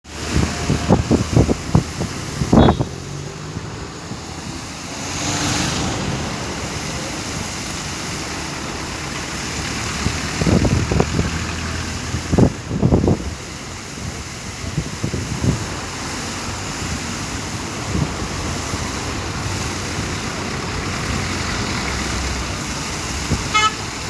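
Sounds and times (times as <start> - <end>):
outdoor rush of wind: 0.0 - 24.0
wind buffeting microphone: 0.1 - 4.7, 9.9 - 20.4.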